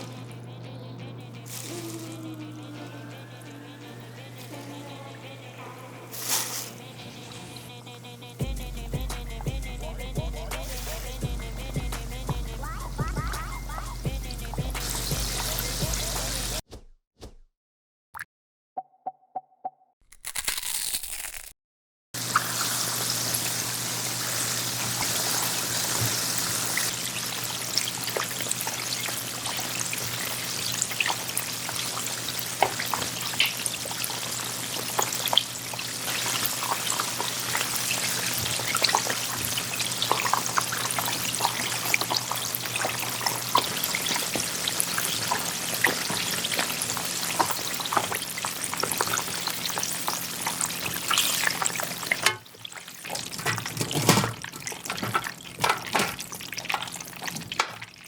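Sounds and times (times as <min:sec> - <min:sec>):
chicken deep-frying in oil: 0:12.4 - 0:16.6, 0:22.2 - 0:58.0.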